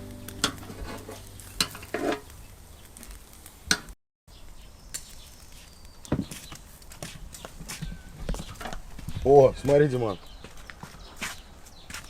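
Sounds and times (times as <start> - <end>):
meat sizzling over charcoal: 0.0 - 9.0.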